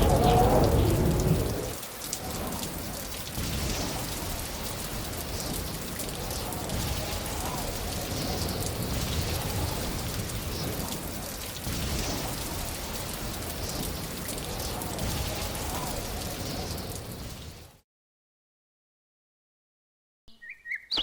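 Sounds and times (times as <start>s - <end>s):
low rumble: 0.0s - 2.8s
rain pattering: 0.0s - 17.8s.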